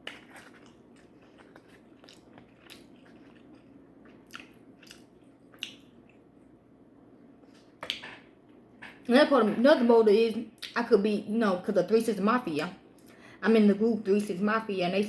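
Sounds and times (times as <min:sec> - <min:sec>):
person chewing food: 0:00.0 - 0:06.4.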